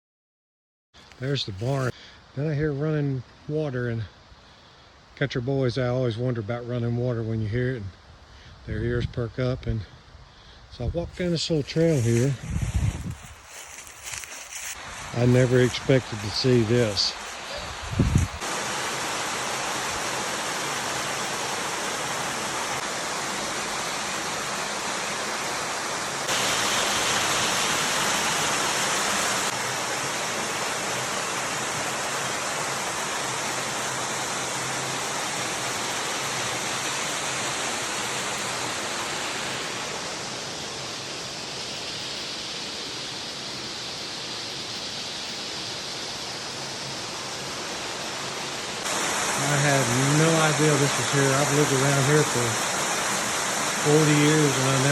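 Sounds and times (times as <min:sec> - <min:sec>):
spring water rushing: 0:11.4 - 0:54.9.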